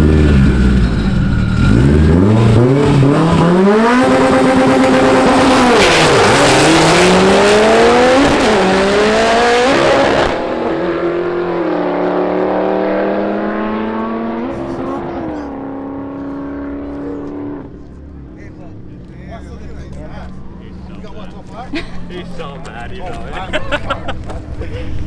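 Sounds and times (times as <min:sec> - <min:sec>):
steady low engine note: 0:00.0 - 0:05.7
car engine revving through gears: 0:00.0 - 0:17.8.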